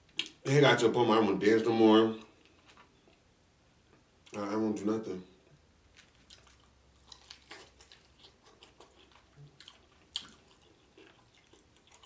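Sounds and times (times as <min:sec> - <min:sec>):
chewing with crunches: 0:05.9 - 0:12.0.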